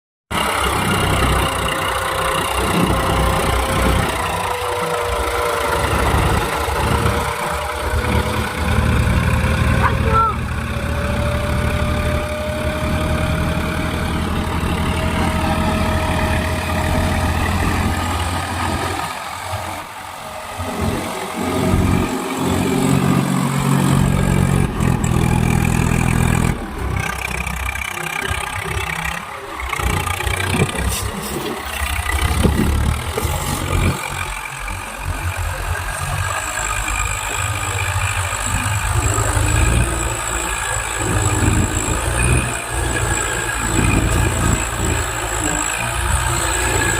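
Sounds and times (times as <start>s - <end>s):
diesel tractor engines revving: 0.3s - 46.9s.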